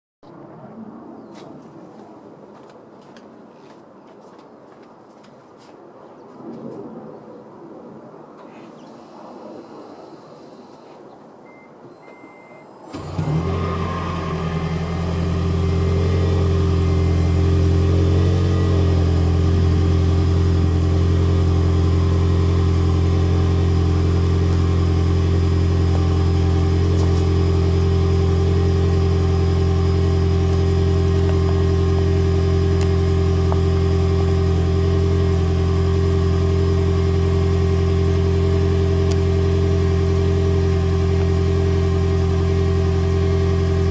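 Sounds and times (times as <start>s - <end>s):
faint short beeps: 11.4s - 12.8s
car engine idling: 13.0s - 43.9s.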